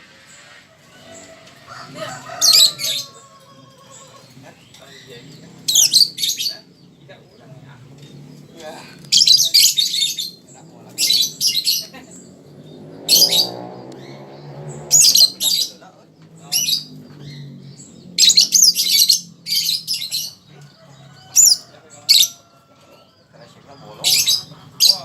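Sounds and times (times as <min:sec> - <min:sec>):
lovebird chattering: 0:02.3 - 0:06.9, 0:08.9 - 0:15.7, 0:16.5 - 0:20.5, 0:21.3 - 0:22.4, 0:23.8 - 0:25.0.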